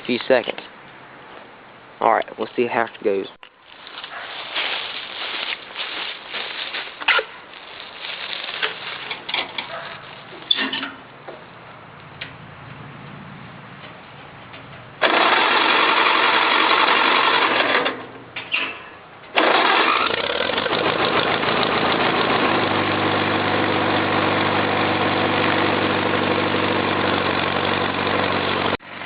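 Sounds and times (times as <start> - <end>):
engine idling roughly: 15.0 - 17.9, 19.4 - 28.8
engine cranking: 15.0 - 18.1, 19.3 - 22.8.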